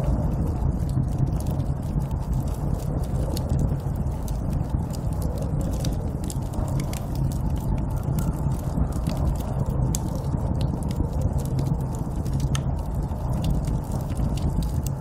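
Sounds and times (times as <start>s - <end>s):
sharp crackles and pops: 0.0s - 15.0s
snowstorm wind rumbling: 0.0s - 15.0s.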